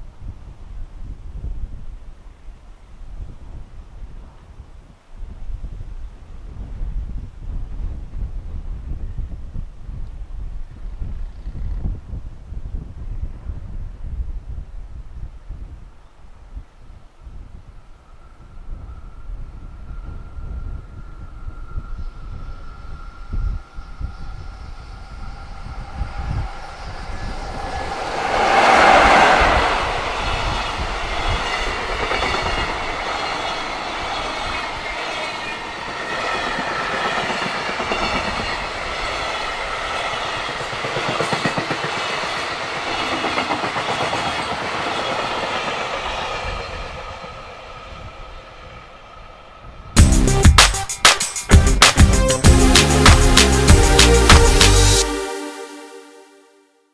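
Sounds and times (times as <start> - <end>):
electric locomotive passing: 17.1 - 50.4
rhythmic train wheel clatter: 24.5 - 46.9.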